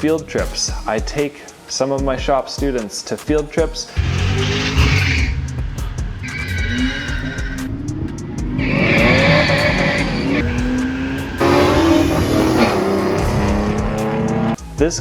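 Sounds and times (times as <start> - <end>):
car engine accelerating hard: 3.9 - 14.6
tires squealing: 3.9 - 14.6.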